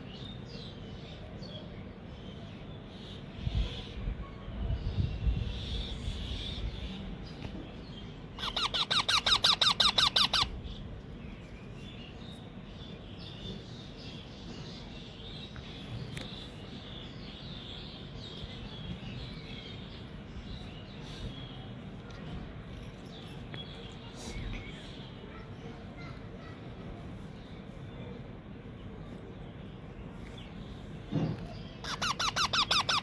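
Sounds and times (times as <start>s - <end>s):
parakeet chick squawking: 8.4s - 10.6s, 31.8s - 33.0s.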